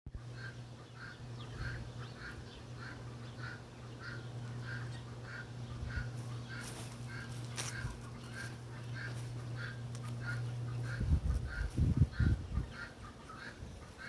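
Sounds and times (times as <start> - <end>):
steady low hum: 0.1 - 14.0.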